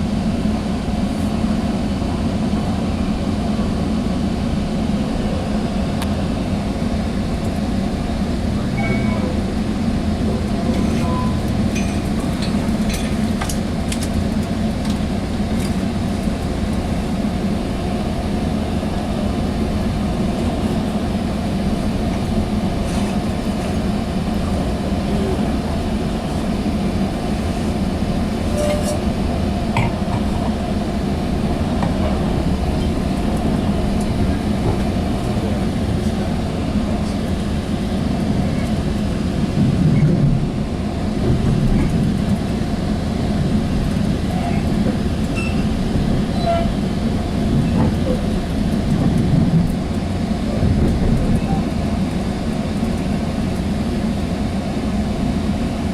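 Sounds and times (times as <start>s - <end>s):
train rumbling along rails: 0.0s - 55.9s.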